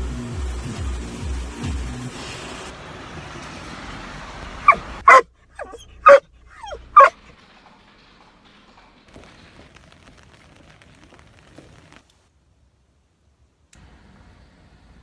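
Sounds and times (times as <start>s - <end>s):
dog barking and yipping: 4.6s - 7.2s.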